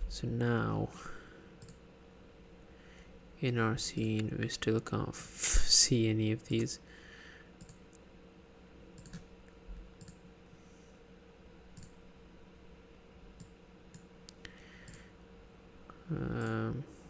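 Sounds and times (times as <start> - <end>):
faint steady hum: 0.0 - 17.0
computer mouse clicking: 1.6 - 1.8, 7.6 - 8.0, 9.0 - 9.3, 10.0 - 10.2, 11.8 - 12.0, 13.4 - 15.0.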